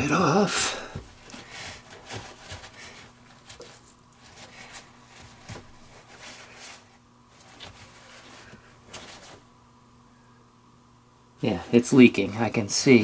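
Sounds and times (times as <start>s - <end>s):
faint steady hum: 0.0s - 13.0s
cloth rustling: 0.1s - 9.6s.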